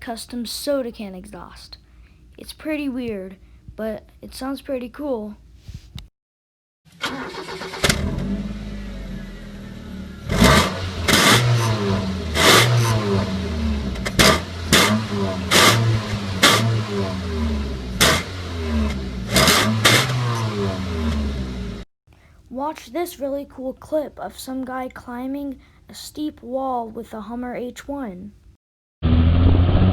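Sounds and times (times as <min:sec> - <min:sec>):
car engine revving: 0:07.0 - 0:21.8
raspy exhaust cracks: 0:07.0 - 0:21.8
car engine idling: 0:07.1 - 0:21.8.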